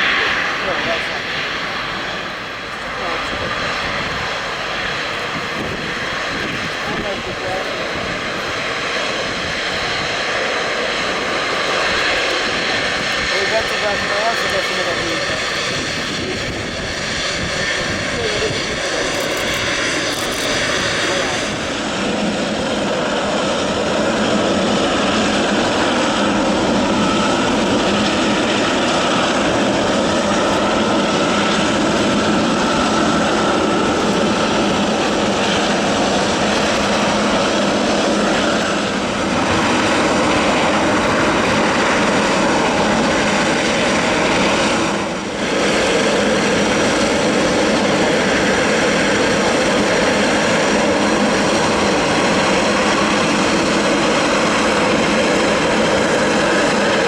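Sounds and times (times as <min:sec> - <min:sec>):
jet engines at takeoff thrust: 0:00.0 - 0:57.0.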